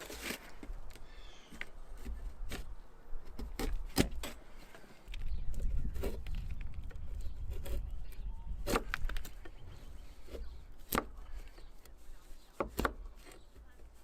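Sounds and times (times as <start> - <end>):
blade chopping wood: 3.3 - 4.4, 8.6 - 9.4, 10.3 - 11.2, 12.6 - 13.4.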